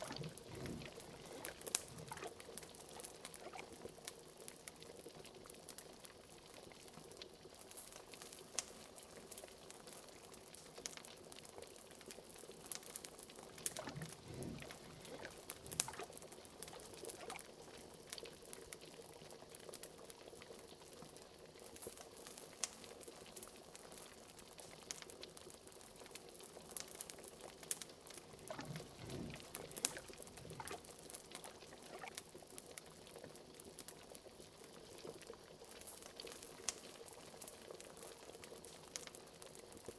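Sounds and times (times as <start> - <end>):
wood fire crackling: 0.0 - 3.6, 13.5 - 17.4, 27.7 - 32.2
liquid bubbling in a pot: 0.0 - 39.9.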